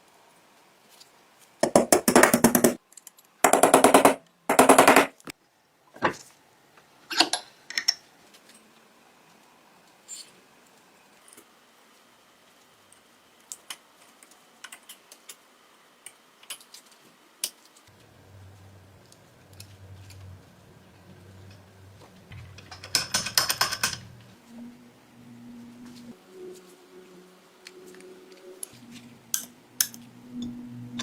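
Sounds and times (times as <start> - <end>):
low steady hum: 17.9 - 23.0, 23.9 - 31.0
small metal parts clicking: 22.5 - 24.1.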